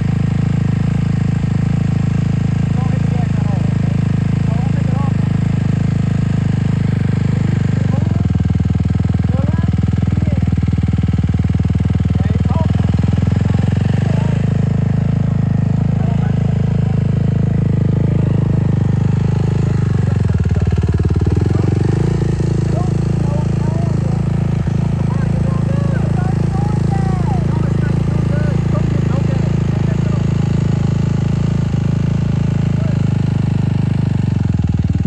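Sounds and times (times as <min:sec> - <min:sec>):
dirt bike engine running: 0:00.0 - 0:35.0.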